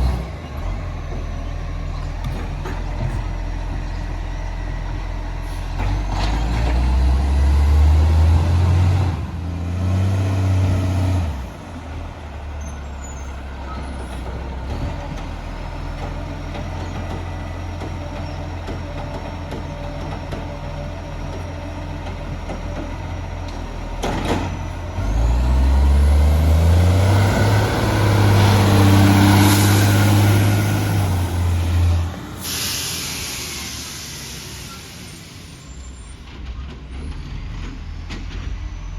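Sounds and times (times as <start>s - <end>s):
diesel truck engine revving: 0.0s - 36.2s
short sharp air release: 32.3s - 36.0s.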